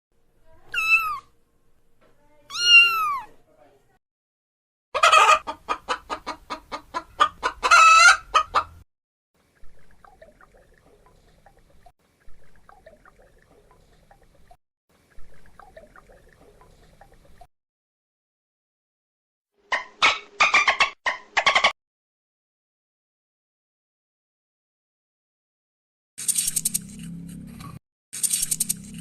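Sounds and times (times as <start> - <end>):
chicken clucking: 5.0 - 8.8, 19.7 - 21.7.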